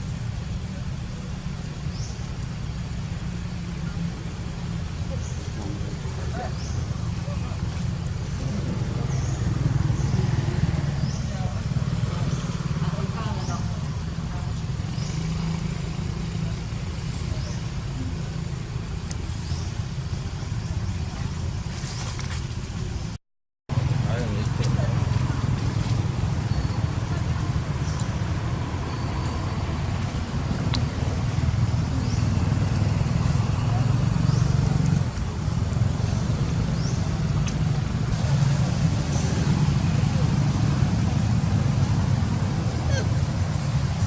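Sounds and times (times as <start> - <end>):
low rumble of road traffic: 0.0 - 44.0.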